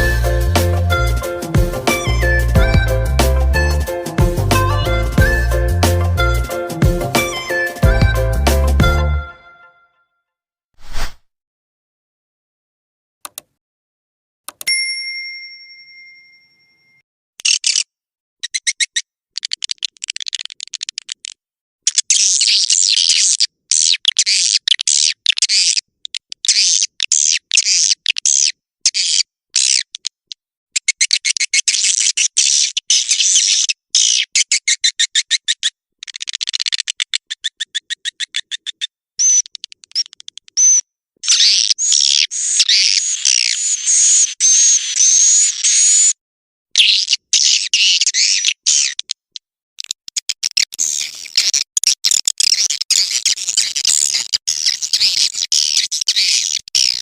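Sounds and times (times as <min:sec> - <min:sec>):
swiftlet calls clicking and twittering: 0:17.4 - 0:30.2, 0:30.8 - 0:46.1, 0:46.8 - 0:49.2, 0:49.8 - 0:57.0
bird chatter: 0:50.5 - 0:57.0.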